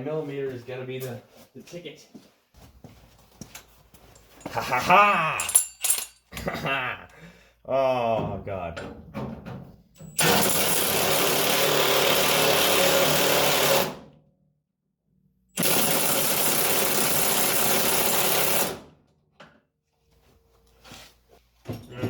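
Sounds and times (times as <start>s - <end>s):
handheld power tool running: 10.1s - 14.0s, 15.6s - 18.8s.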